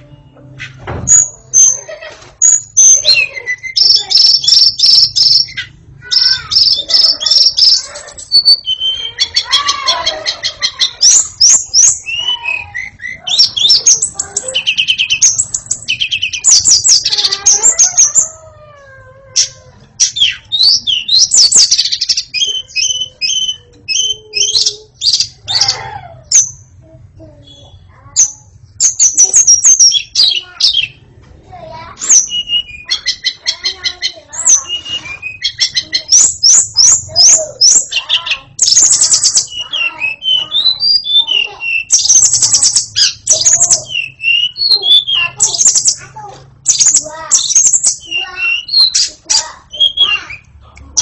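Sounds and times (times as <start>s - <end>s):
bird singing whistles and trills: 2.4s - 9.5s, 32.0s - 33.5s, 34.4s - 46.0s, 46.7s - 49.1s.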